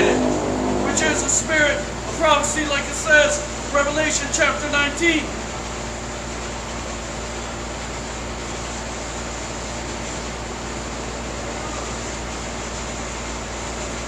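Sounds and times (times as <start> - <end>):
low hum: 0.0 - 3.6.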